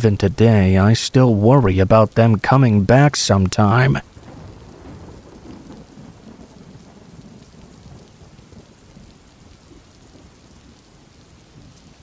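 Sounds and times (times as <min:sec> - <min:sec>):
steady rain: 0:00.0 - 0:12.0
rumble of thunder: 0:04.0 - 0:12.0.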